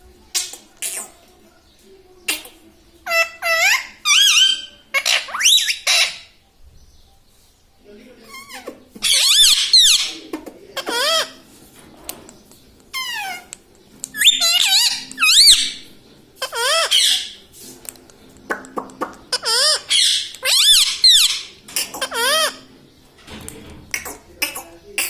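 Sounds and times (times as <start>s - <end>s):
parrot squawks and whistles: 3.1s - 6.3s, 8.4s - 10.2s, 14.2s - 15.8s, 19.4s - 22.6s.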